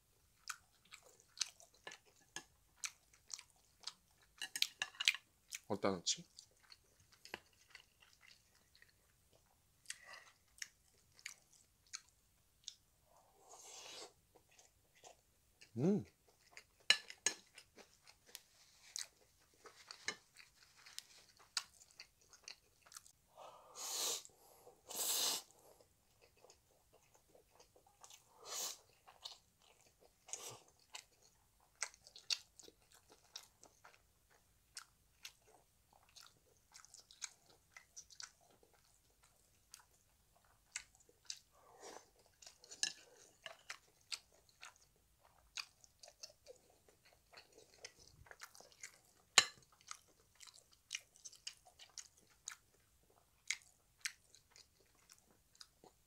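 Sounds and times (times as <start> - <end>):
chewing with wet mouth clicks: 0.3 - 12.8, 14.3 - 23.2, 25.8 - 56.0.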